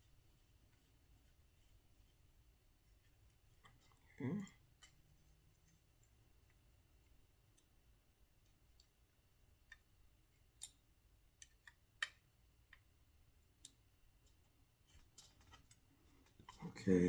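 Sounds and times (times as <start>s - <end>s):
small tools and screws clicking: 9.6s - 12.8s.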